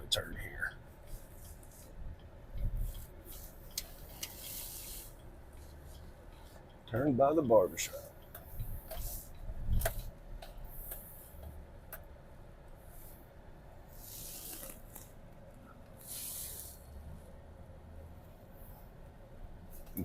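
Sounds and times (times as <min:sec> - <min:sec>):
short hisses: 0:16.0 - 0:16.8.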